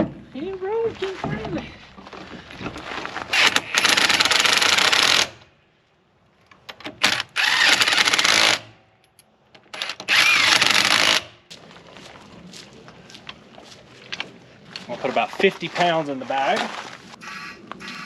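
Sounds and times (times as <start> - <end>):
impact wrench bursts: 3.3 - 5.4, 7.0 - 8.7, 9.8 - 11.3.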